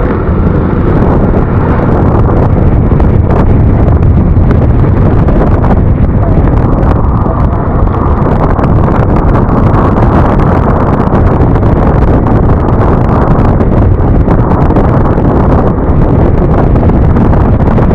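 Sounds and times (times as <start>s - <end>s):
scooter engine: 0.0s - 4.8s
road noise: 0.0s - 17.9s
wind buffeting microphone: 0.0s - 17.9s.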